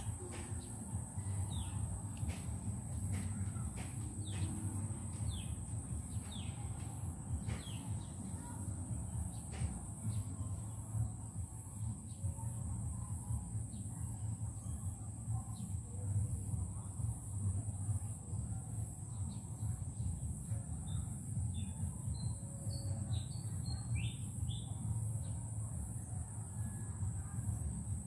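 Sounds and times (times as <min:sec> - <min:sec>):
birds chirping: 0:00.0 - 0:08.6
low background rumble: 0:00.0 - 0:28.0.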